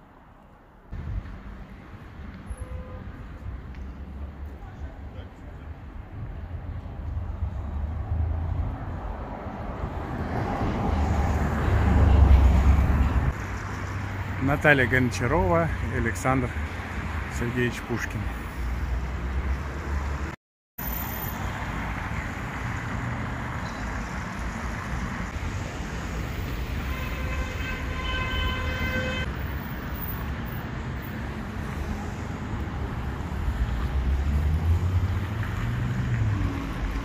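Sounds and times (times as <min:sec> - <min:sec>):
city traffic noise: 0:00.0 - 0:37.0
vehicle horn blast: 0:26.9 - 0:29.3.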